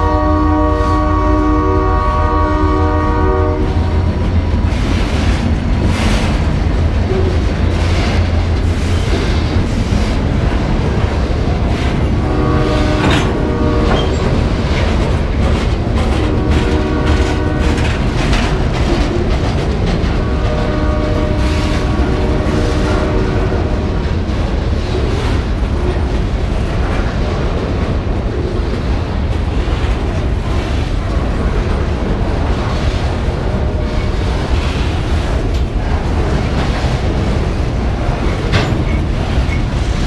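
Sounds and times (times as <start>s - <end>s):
train air horn chord: 0.0s - 3.8s, 12.2s - 13.9s, 16.3s - 17.8s, 20.2s - 23.8s
low train rumble: 0.0s - 40.0s
wheels clattering over rails: 3.6s - 40.0s.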